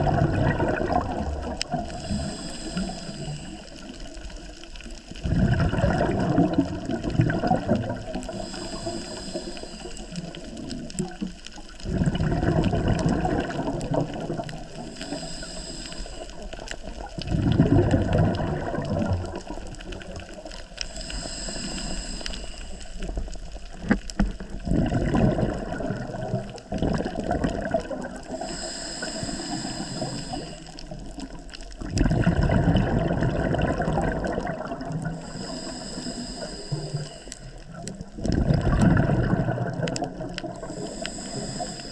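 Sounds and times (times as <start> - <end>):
exhaled bubbles gurgling: 0.0 - 41.9
regulator inhalation hiss: 1.9 - 4.1, 8.2 - 10.6, 14.8 - 16.5, 20.8 - 23.3, 28.3 - 31.0, 35.1 - 37.6, 40.6 - 41.9.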